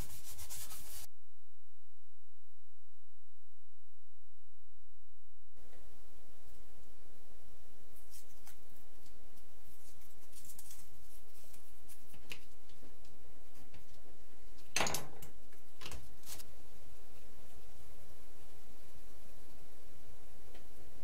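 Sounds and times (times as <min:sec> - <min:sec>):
steady low hum: 0:00.0 - 0:14.6
paper being handled and cut: 0:08.0 - 0:12.7.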